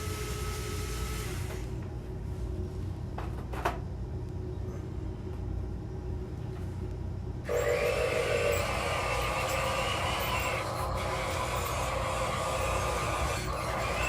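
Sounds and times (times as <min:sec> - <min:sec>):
low steady hum: 0:00.0 - 0:13.9
small electric motor whining: 0:07.5 - 0:14.0.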